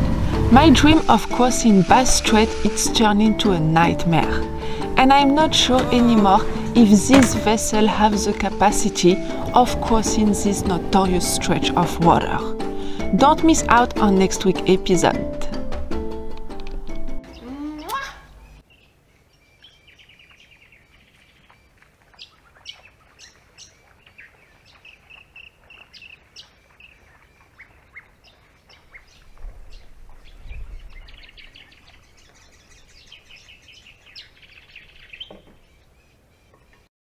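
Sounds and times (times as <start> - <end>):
small birds chirping: 17.2 - 36.9.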